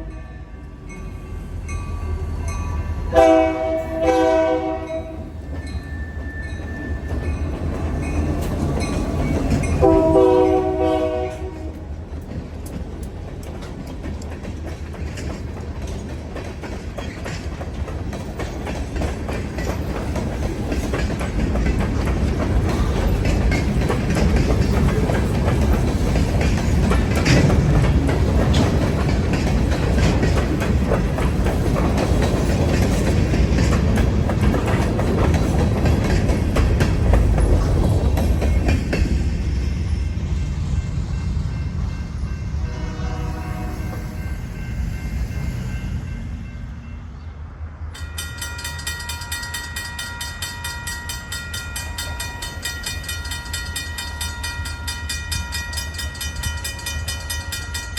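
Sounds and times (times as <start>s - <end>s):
train rumble and wheel clicks: 0.0s - 57.9s
locomotive horn blast: 3.1s - 5.3s, 9.8s - 11.8s, 42.6s - 44.0s.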